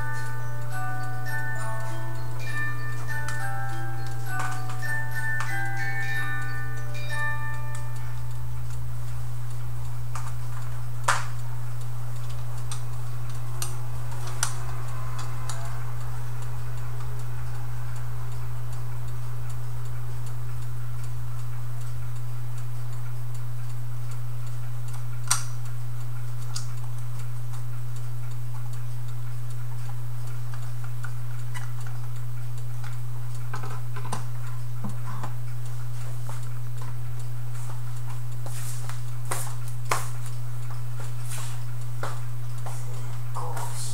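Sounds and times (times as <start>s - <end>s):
clock ticking: 0.0s - 43.9s
loud low hum: 10.7s - 22.6s
sharp clicks: 24.9s - 25.6s.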